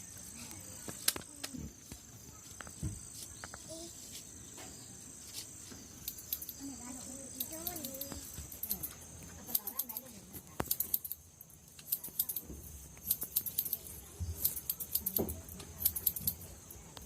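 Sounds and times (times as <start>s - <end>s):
scissors snipping hair: 7.3s - 11.2s, 11.8s - 16.5s.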